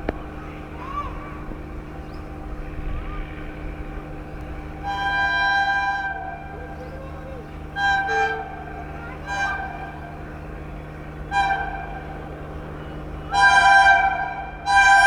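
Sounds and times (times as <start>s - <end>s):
locomotive horn blast: 0.0s - 15.0s
low hum of approaching train: 0.0s - 15.0s.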